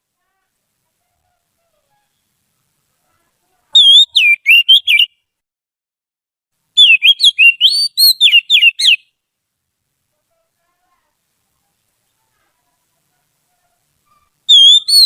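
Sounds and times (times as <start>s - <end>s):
bird singing whistled notes: 3.8s - 5.2s, 6.8s - 9.2s, 14.1s - 15.0s.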